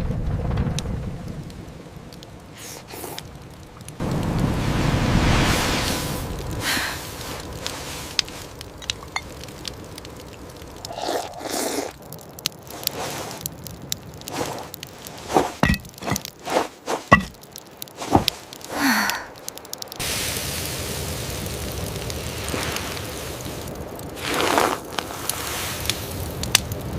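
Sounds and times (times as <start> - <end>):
rain hissing: 0.0 - 26.9
objects scraping and knocking: 14.2 - 18.5.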